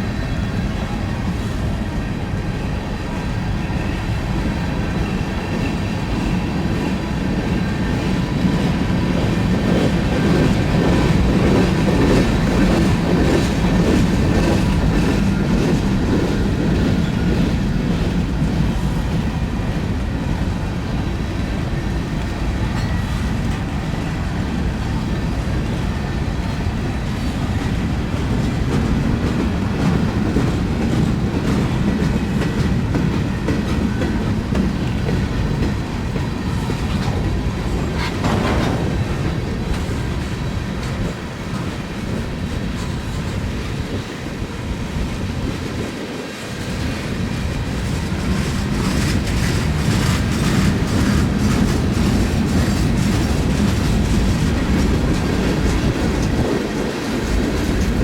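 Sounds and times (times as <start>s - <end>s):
freight train rolling past: 0.0s - 58.0s
wheels clacking over rail joints: 3.1s - 46.0s, 46.6s - 58.0s
wheels clicking over rail joints: 47.4s - 58.0s.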